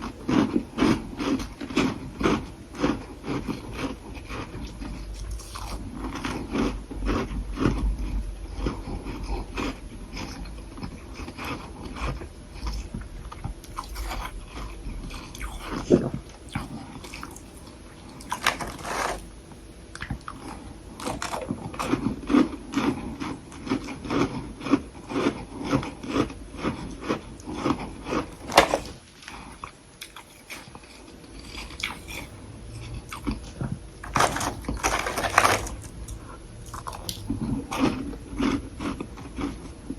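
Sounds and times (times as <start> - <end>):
frost being bitten and chewed: 0.0 - 8.0, 20.0 - 39.6.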